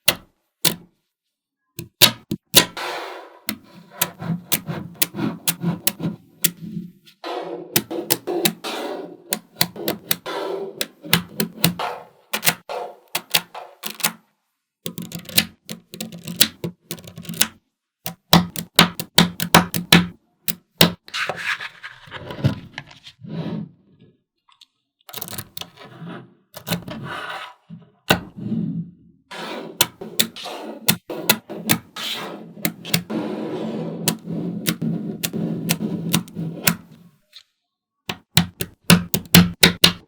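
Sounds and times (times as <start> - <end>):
magnetic balls clicking together: 7.8 - 8.7, 9.3 - 14.2, 14.9 - 21.0, 32.7 - 33.1, 38.1 - 40.0.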